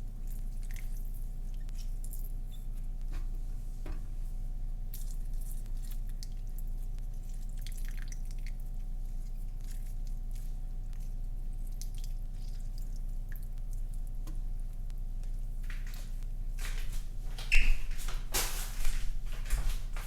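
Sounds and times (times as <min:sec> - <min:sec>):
steady low hum: 0:00.0 - 0:20.0
lemon squishing and juice dripping: 0:00.1 - 0:03.1, 0:04.8 - 0:16.3.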